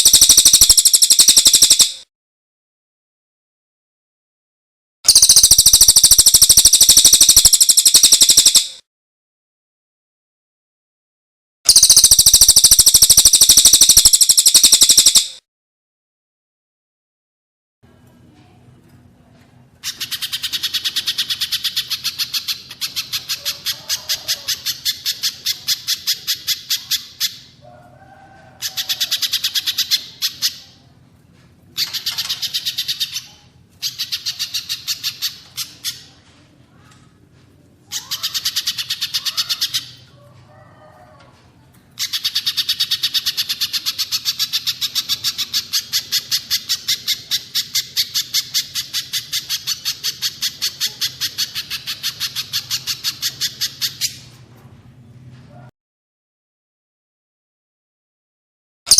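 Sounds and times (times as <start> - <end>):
rapid high bird chips: 0.0 - 2.0, 11.7 - 15.4.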